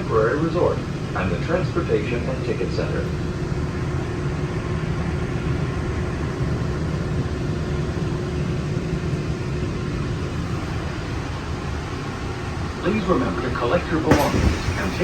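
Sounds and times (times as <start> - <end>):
faint steady whine: 10.1 - 15.0
monorail rumble: 10.2 - 15.0.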